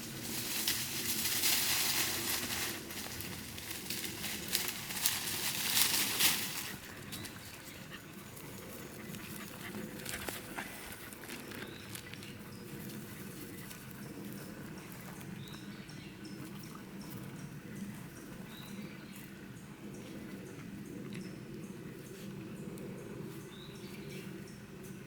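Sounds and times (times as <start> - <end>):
footsteps: 0.0 - 7.8
rustling and crackling on wet path: 0.0 - 15.8.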